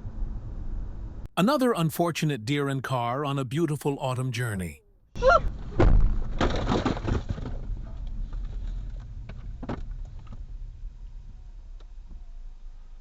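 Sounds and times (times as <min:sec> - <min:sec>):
road noise: 0:00.0 - 0:01.3
crunching clatter: 0:05.5 - 0:12.2.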